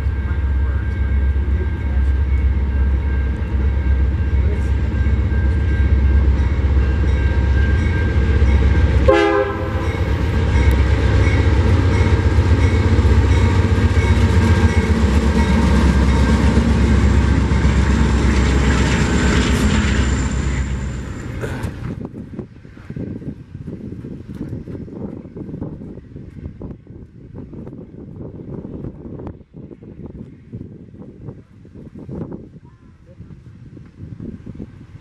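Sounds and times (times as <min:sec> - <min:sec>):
diesel engine rumble: 0:00.0 - 0:22.4
train air horn: 0:09.0 - 0:10.1.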